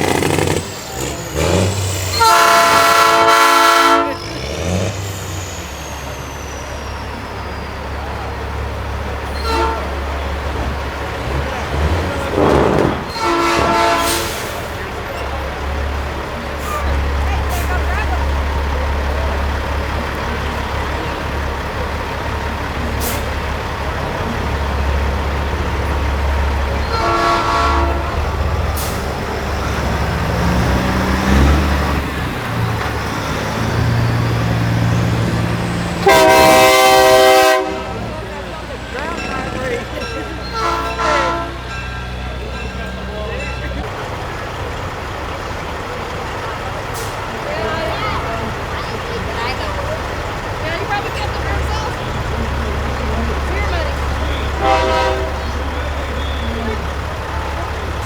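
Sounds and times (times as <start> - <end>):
truck air horn blast: 0.0 - 5.1, 9.3 - 10.2, 11.2 - 14.8, 26.8 - 32.0, 35.9 - 38.2, 40.6 - 41.7, 54.4 - 56.5
diesel engines idling: 0.0 - 58.0
air brake hiss: 14.0 - 14.8.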